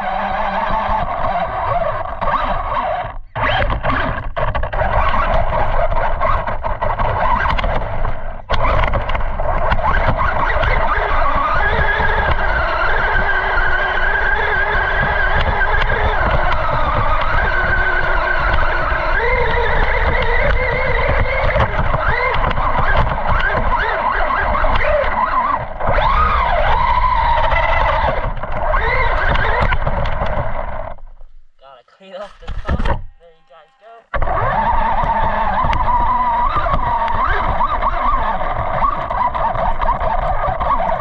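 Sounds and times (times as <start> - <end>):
rc car motor whining: 0.0 - 31.0, 32.2 - 41.0.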